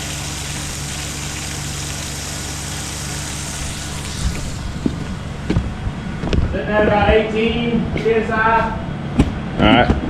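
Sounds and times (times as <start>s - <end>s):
water rushing from drain: 0.0s - 5.5s
low steady hum: 0.0s - 10.0s.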